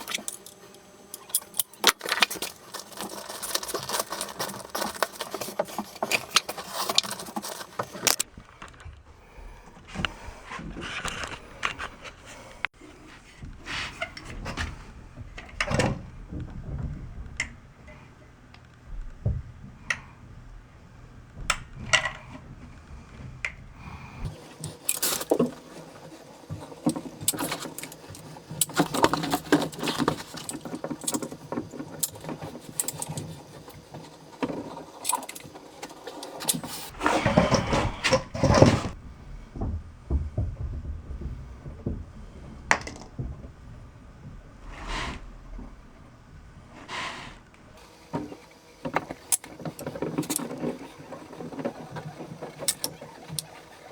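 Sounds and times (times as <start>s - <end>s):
hand tools clicking and knocking: 0.0s - 8.9s, 21.4s - 39.0s, 48.2s - 53.9s
building materials scraping: 0.0s - 18.2s, 21.7s - 43.3s, 44.4s - 46.0s, 46.6s - 53.9s.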